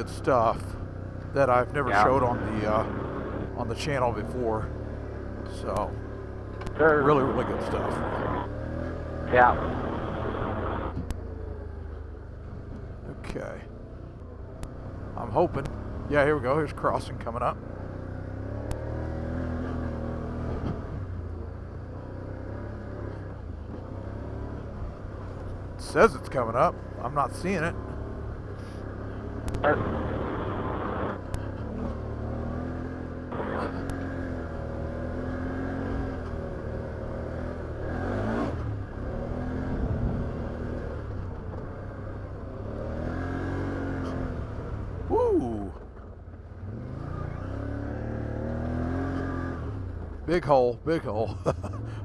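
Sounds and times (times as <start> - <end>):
atv engine running: 0.0 - 11.6, 22.6 - 37.8
rush of noise: 1.9 - 3.5, 6.7 - 8.5, 9.3 - 11.0, 29.5 - 31.3, 33.3 - 33.9.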